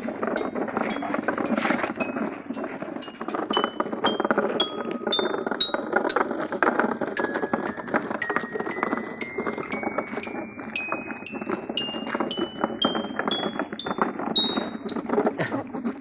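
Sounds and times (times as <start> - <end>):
gravel pebbles clattering: 0.0 - 16.0
chiming melody of high notes: 7.2 - 16.0.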